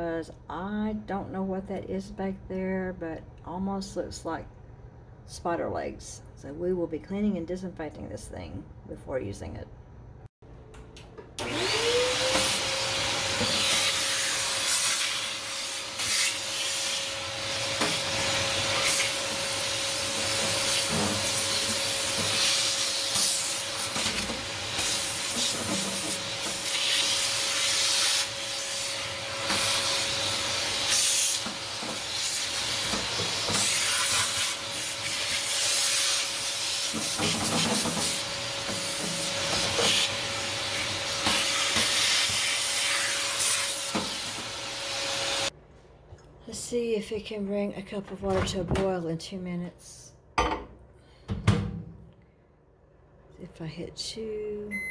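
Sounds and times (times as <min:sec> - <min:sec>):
vacuum cleaner running: 0:11.4 - 0:45.6.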